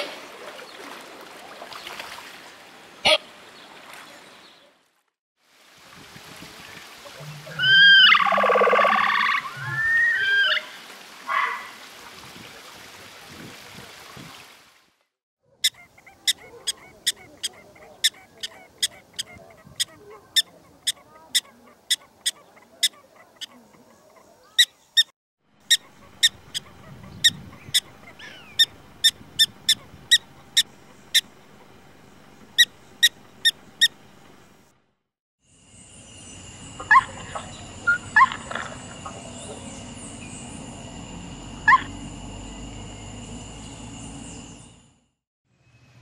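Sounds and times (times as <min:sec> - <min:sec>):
prairie dog barking chirps: 0:15.5 - 0:34.1, 0:36.8 - 0:39.6, 0:41.6 - 0:41.9.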